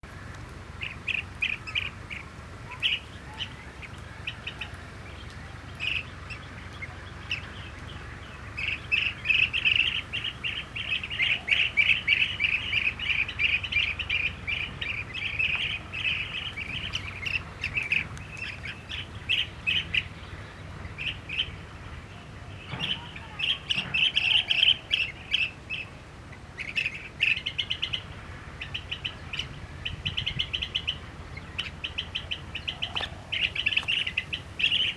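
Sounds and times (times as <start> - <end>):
bee-eaters calling in rolling trills: 0.1 - 34.9.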